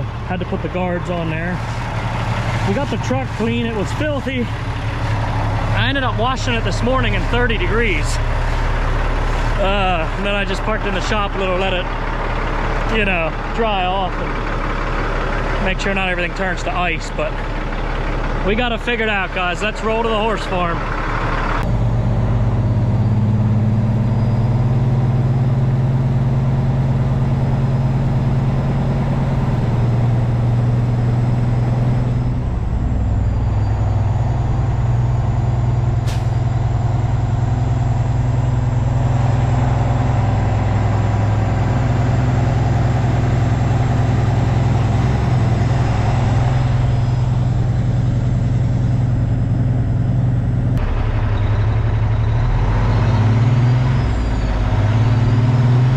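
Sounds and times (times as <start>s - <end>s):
truck diesel engine running: 0.0s - 55.9s.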